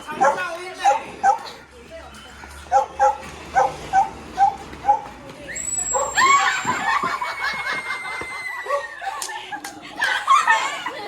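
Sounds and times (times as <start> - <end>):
small dog yipping: 2.7 - 6.6.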